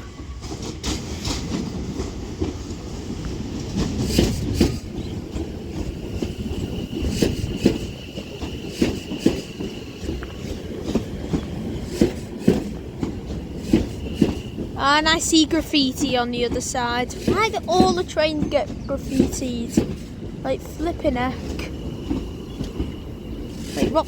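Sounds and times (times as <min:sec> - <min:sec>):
low train rumble: 0:00.0 - 0:24.0
train wheels clicking over rail joints: 0:00.2 - 0:24.0
high squeal: 0:04.3 - 0:10.7.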